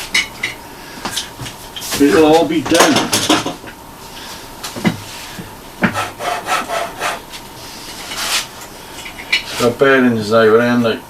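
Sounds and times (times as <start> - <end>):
wooden parts rubbing and scraping: 5.9 - 7.2.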